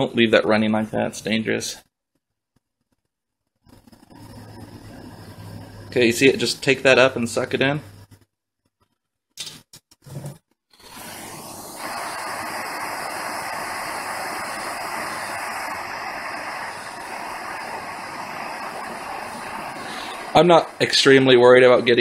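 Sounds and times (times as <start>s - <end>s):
torch flame hissing: 3.6s - 8.2s, 10.1s - 22.0s.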